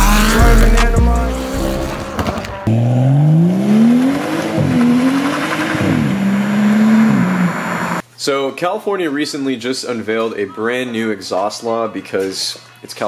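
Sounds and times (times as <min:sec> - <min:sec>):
hip-hop music with heavy bass: 0:00.0 - 0:02.9
car accelerating hard: 0:00.0 - 0:08.0.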